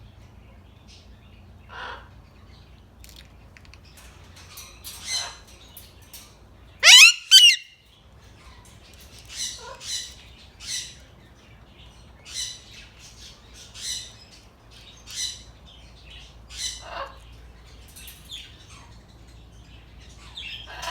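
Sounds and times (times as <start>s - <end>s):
parrots squawking: 6.8s - 7.7s
parrot chirping calls: 6.8s - 7.8s.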